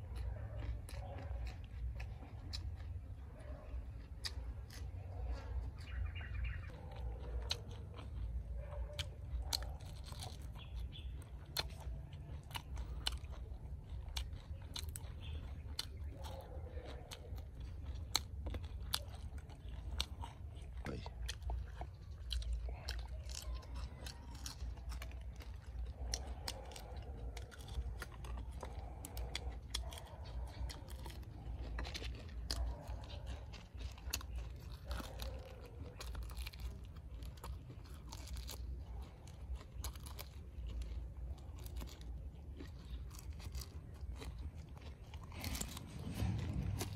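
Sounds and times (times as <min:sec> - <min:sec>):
crunchy chewing: 0:00.0 - 0:46.9
low rumble: 0:45.1 - 0:46.9.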